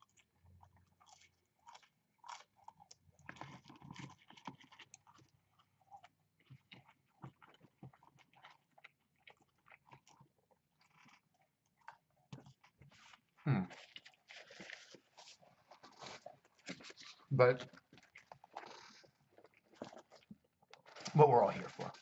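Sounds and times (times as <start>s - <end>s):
chewing fries: 0.0s - 22.0s
wet mouth clicks: 18.1s - 20.3s.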